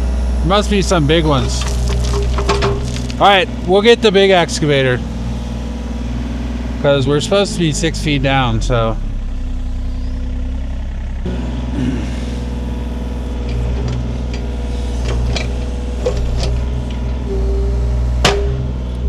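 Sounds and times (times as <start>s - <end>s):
excavator engine running: 0.0s - 19.0s
sharp metallic clanks: 18.2s - 19.0s.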